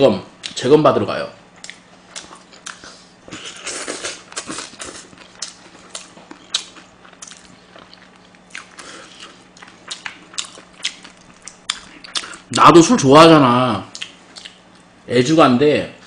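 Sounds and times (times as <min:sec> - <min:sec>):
person chewing with mouth clicks: 0:01.6 - 0:12.6, 0:13.9 - 0:14.9.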